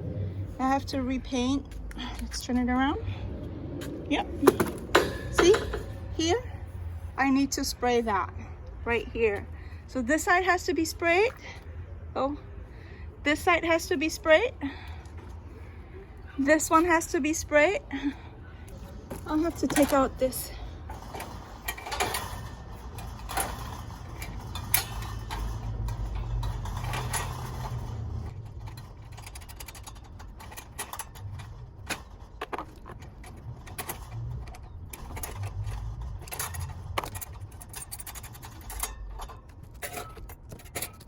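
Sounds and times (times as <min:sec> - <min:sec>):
low rumble: 0:00.0 - 0:07.2
metal cage parts clinking: 0:04.4 - 0:06.2, 0:18.7 - 0:41.0.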